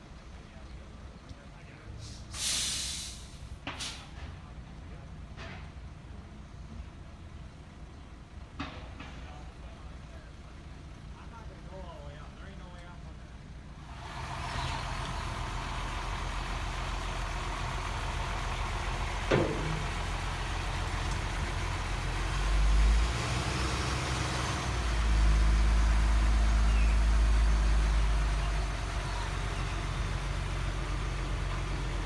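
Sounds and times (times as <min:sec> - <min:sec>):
heavy vehicle engine idling: 0:00.0 - 0:32.0.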